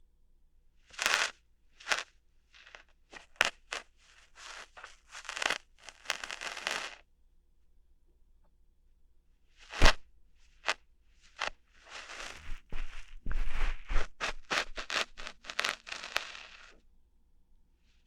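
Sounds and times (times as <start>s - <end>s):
crackly scratches and rustles: 0.9s - 7.0s, 9.6s - 16.8s
sharp click: 9.8s - 10.0s.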